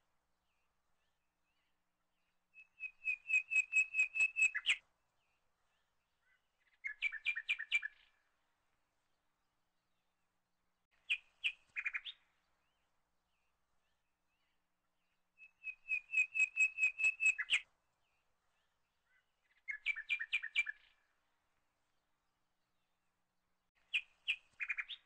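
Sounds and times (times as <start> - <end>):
small bird chirping: 2.5 - 4.8, 5.8 - 8.2, 11.0 - 12.8, 13.9 - 17.7, 18.5 - 21.1, 23.8 - 25.0.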